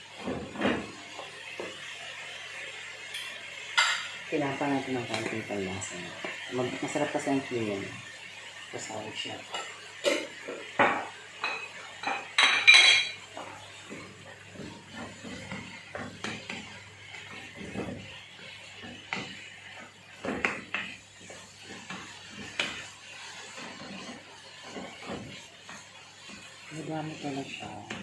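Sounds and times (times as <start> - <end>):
utensils and dishes clinking: 10.9 - 13.4.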